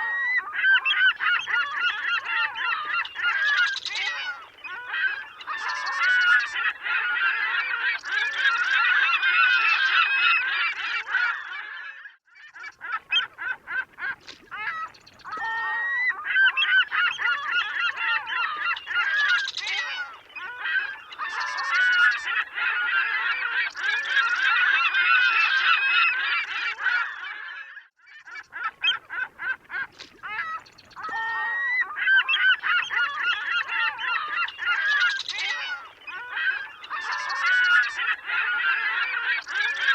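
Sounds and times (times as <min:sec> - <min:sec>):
gulls calling: 0:12.6 - 0:27.2, 0:28.3 - 0:39.9.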